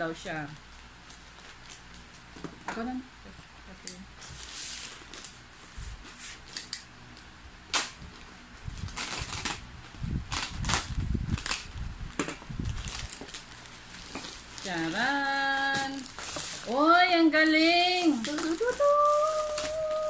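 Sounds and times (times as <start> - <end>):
rustling of handling: 4.2 - 6.7, 8.1 - 20.0
cardboard snapping and ripping: 6.4 - 8.0, 8.8 - 16.8, 18.0 - 20.0.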